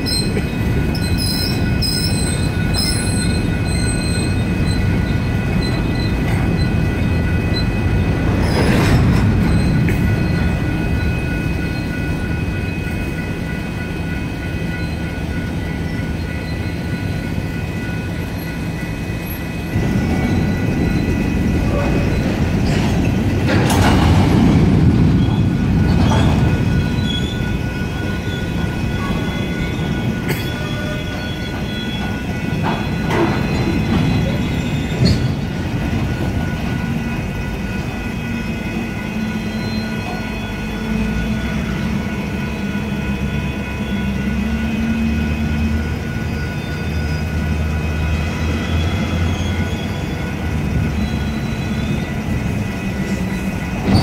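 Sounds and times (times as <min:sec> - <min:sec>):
wheel squeals: 0:00.0 - 0:07.8, 0:08.4 - 0:12.0, 0:25.1 - 0:35.5, 0:48.2 - 0:54.0
freight wheels rumbling and clacking: 0:00.0 - 0:38.4, 0:43.8 - 0:54.0
crossing bells ringing: 0:00.0 - 0:54.0.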